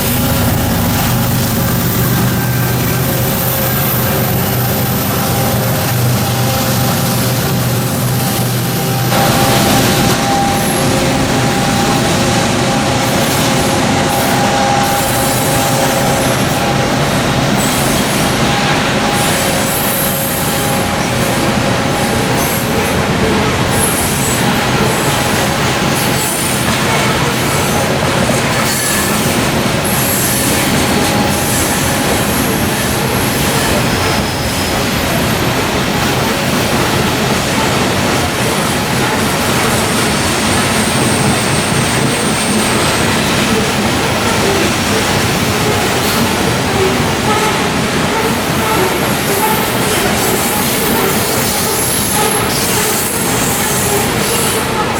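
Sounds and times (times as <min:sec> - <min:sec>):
steel wheels rolling on rail: 0:00.0 - 0:54.9.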